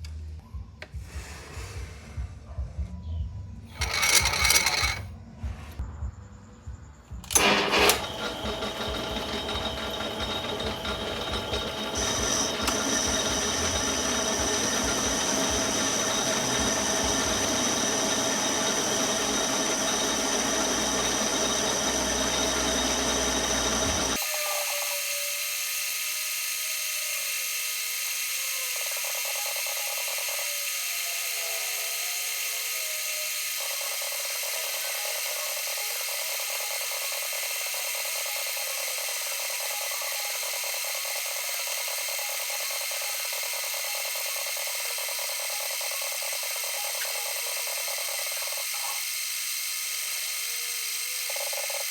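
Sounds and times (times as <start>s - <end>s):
metal lathe whirring: 3.7s - 5.1s, 7.3s - 51.9s
thin whining tones: 7.3s - 25.6s.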